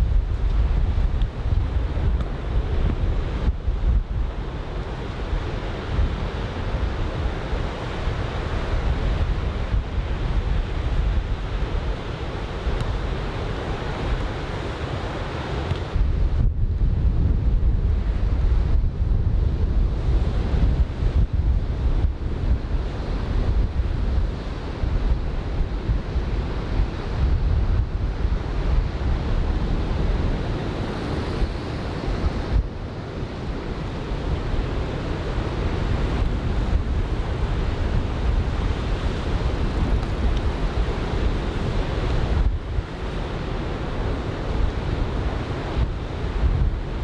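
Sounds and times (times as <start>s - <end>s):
wind buffeting microphone: 0.0s - 15.0s, 15.8s - 47.0s.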